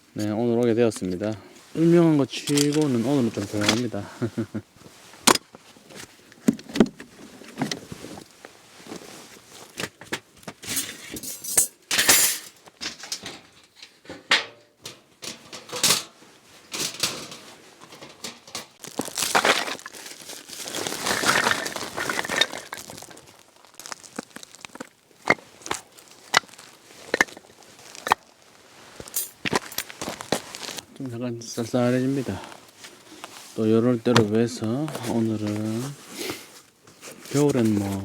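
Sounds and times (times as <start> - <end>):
rustling: 0.0 - 11.7, 15.2 - 38.0
plastic packaging crinkling: 1.1 - 4.4, 17.8 - 38.0
hard items clinking and knocking: 9.8 - 30.9.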